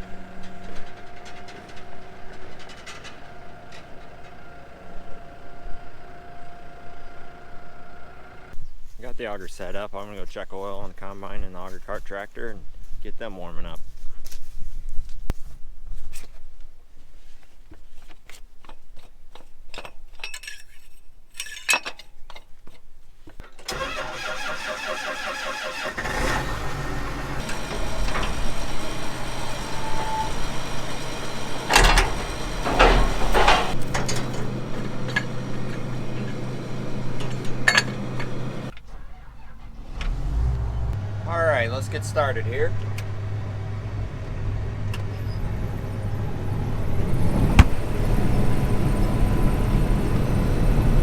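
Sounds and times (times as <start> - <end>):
diesel engine idling: 0.0 - 8.6, 23.7 - 51.0
diesel engine starter cranking: 0.0 - 8.6, 23.4 - 51.0
clicks and knocks: 27.4 - 39.0.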